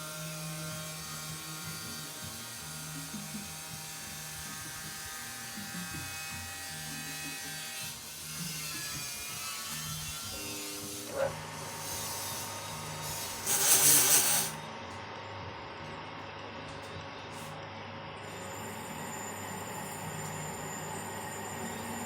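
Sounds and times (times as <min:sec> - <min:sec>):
lathe motor humming and whining: 0:10.1 - 0:22.0.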